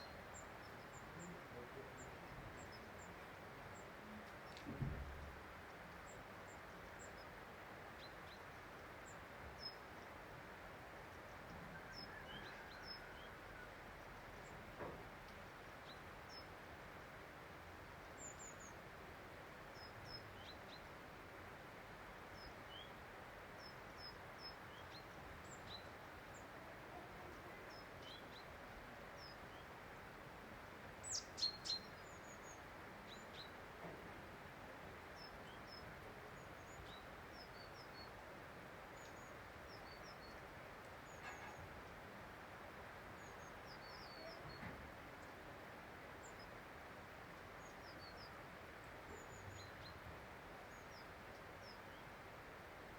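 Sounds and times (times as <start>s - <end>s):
faint outdoor hiss: 0.0s - 52.9s
small birds chirping: 17.8s - 18.8s, 23.6s - 33.7s, 34.5s - 52.2s.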